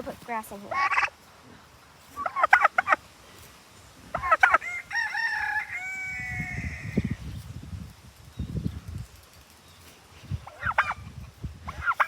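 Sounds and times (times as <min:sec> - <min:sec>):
rooster crowing: 0:04.3 - 0:07.2.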